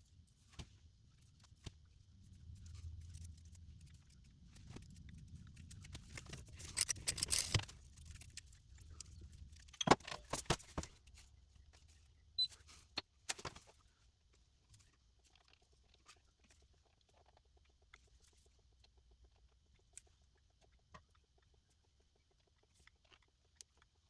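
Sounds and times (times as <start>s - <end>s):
metal tools clicking and rattling: 6.2s - 8.4s.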